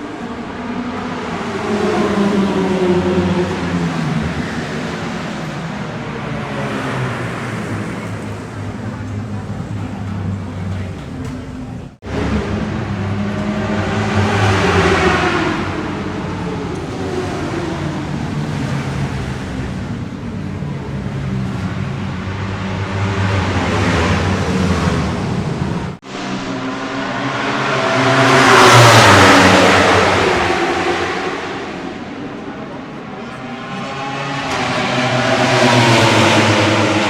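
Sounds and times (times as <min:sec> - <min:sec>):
passing engine: 0:00.0 - 0:37.0.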